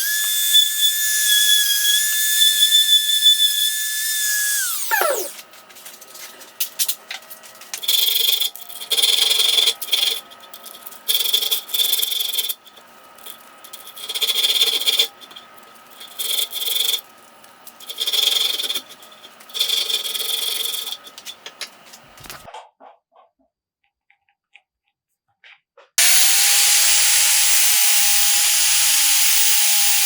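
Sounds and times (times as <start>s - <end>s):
scraping strokes on steel: 7.7s - 21.6s.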